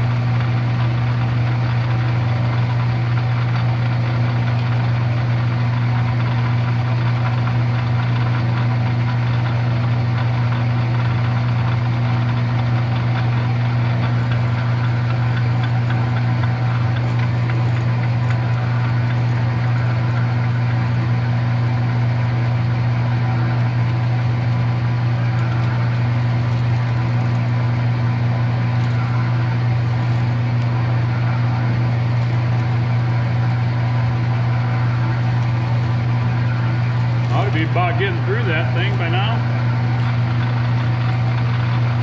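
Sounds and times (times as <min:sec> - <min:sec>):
electric drill drilling metal: 0:00.0 - 0:42.0.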